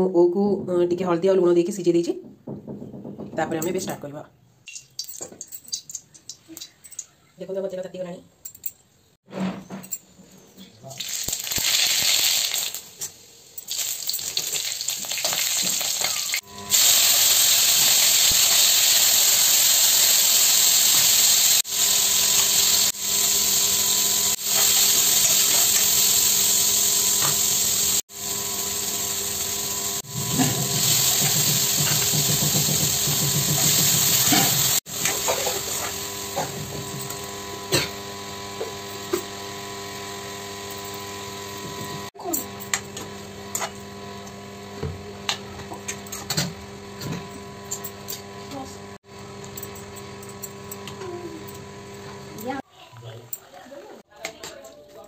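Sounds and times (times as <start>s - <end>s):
food sizzling in hot oil: 10.9s - 41.6s.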